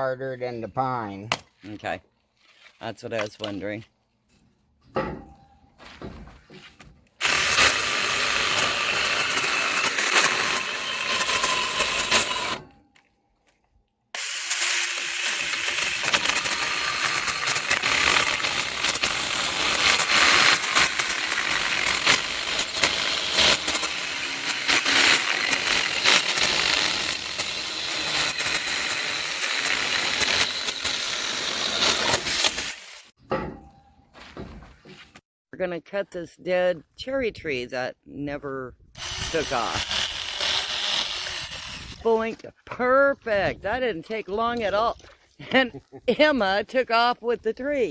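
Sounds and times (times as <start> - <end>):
chainsaw cutting wood: 7.2 - 12.8, 14.1 - 33.2, 39.0 - 42.3.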